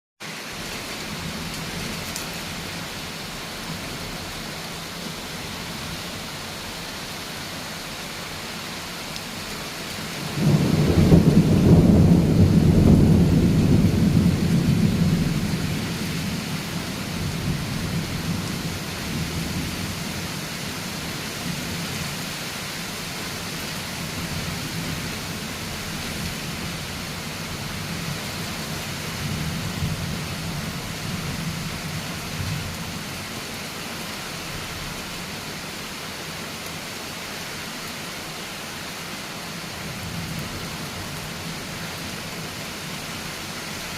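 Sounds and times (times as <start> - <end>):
steady rain: 0.2 - 43.9
thunder rumbling: 10.2 - 19.6.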